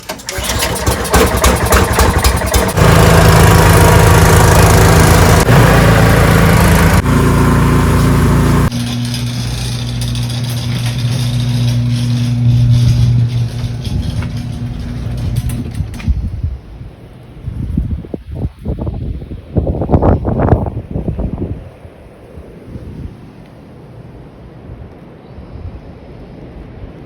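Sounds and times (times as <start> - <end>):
snowblower engine running: 0.0 - 16.2
engine cranking: 0.0 - 16.3.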